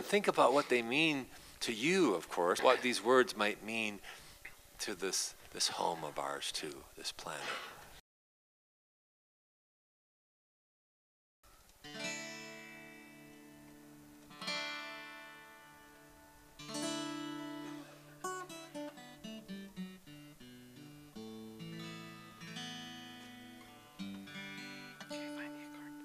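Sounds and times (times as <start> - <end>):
acoustic guitar strumming and picking: 11.8 - 26.0.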